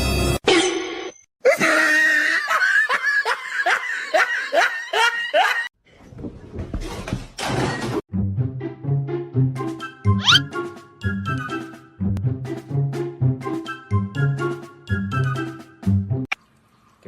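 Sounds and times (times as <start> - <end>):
person laughing hard: 1.4 - 5.7.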